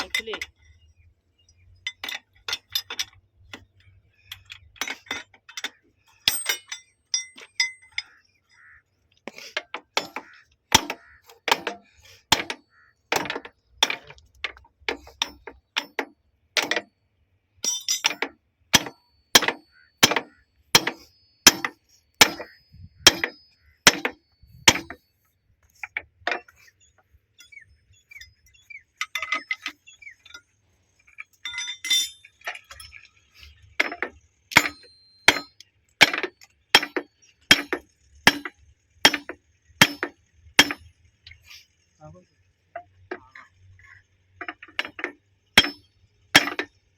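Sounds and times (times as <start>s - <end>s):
metal tools striking steel: 4.4s - 8.2s, 10.0s - 16.9s, 17.6s - 25.0s, 27.4s - 30.4s, 31.2s - 33.1s, 33.8s - 40.9s, 44.4s - 46.7s.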